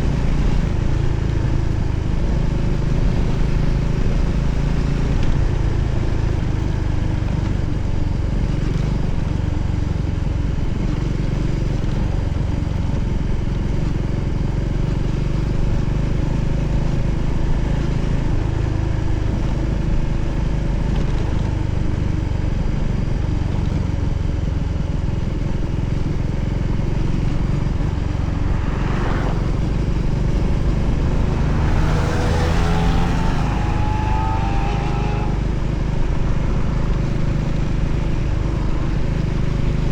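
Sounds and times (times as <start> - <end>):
motorcycle engine running: 0.0 - 39.9
rising engine tone: 26.4 - 39.4.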